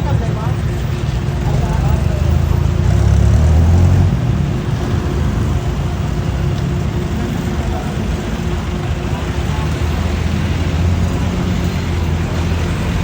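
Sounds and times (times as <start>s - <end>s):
road noise: 0.0s - 13.0s
vehicle engine rumbling: 0.0s - 13.0s.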